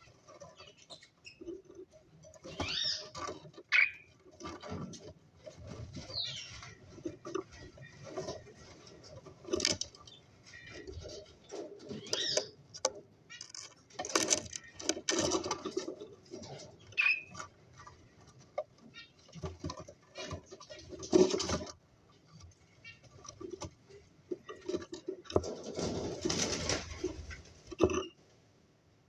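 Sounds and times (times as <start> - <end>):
taps and rustling: 0.2 - 28.1
cockatiels chirping: 2.5 - 4.1, 6.1 - 6.8, 12.0 - 12.6, 17.0 - 17.4.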